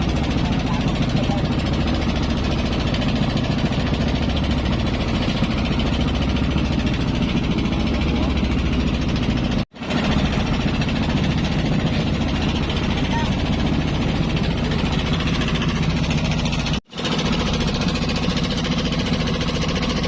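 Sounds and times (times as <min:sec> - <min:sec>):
boat engine humming and rattling: 0:00.0 - 0:20.0.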